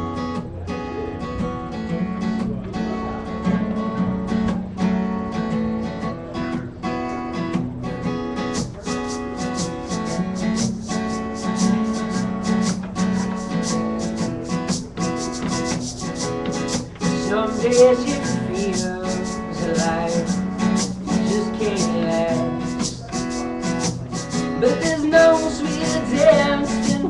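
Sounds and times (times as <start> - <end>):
acoustic guitar strumming: 0.0 - 27.0.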